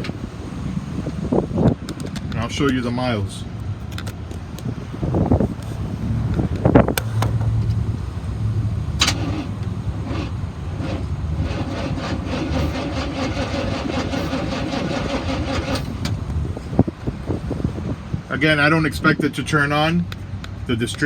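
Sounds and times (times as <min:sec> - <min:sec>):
engine cranking on starter: 0:08.4 - 0:16.3.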